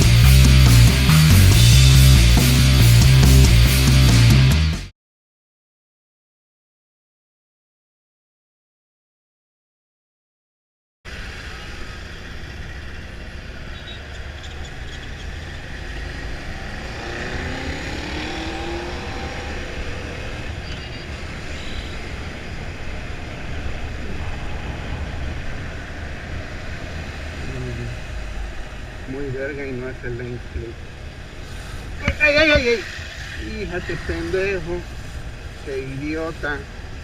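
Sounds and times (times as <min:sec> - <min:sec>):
motorcycle engine running: 0:00.0 - 0:04.9
wind rushing over microphone: 0:17.8 - 0:29.1.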